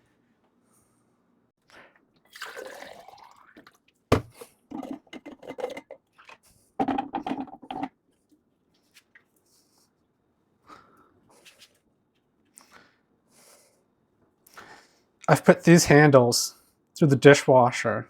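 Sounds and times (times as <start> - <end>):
hard objects clattering: 4.1 - 7.9.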